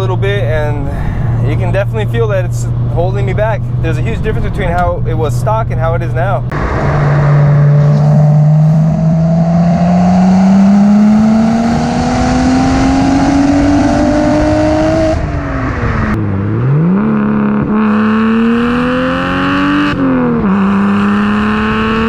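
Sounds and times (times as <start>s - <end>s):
loud car engine revving: 6.5s - 22.0s.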